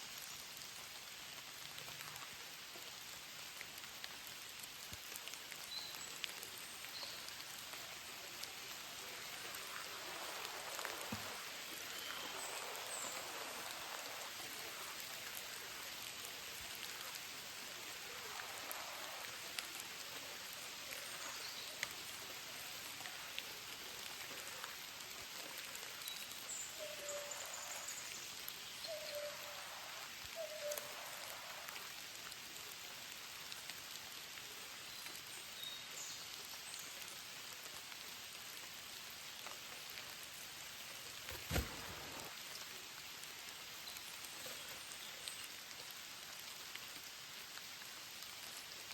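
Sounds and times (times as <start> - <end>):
rain falling: 0.0 - 48.9
sharp taps of raindrops: 41.2 - 43.3.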